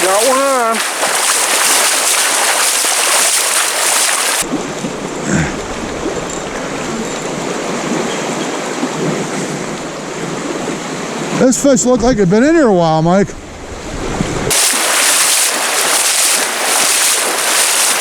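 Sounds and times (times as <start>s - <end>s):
creek water rushing: 0.0s - 11.4s, 14.5s - 18.0s
wind on microphone rumble: 4.4s - 11.3s, 11.9s - 14.5s.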